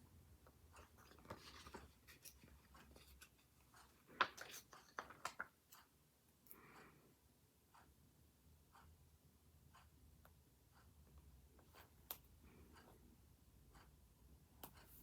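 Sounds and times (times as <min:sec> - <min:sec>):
paper rustling: 0:01.0 - 0:05.5.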